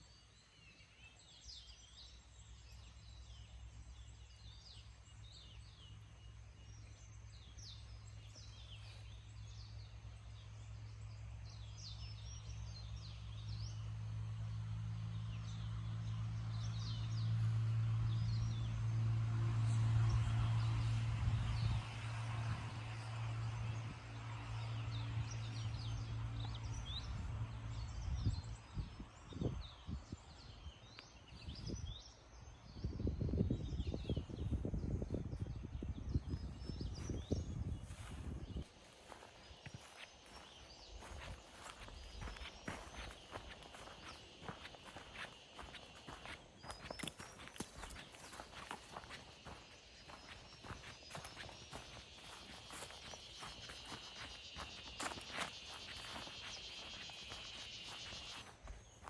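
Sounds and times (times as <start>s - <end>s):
low engine hum: 1.8s - 59.0s
birds chirping: 33.7s - 59.0s.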